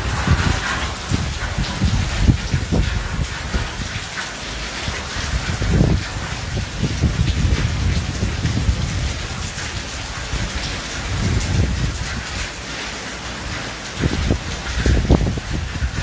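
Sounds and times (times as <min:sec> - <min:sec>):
low rumbles: 0:00.0 - 0:04.0
heavy rain: 0:00.0 - 0:16.0.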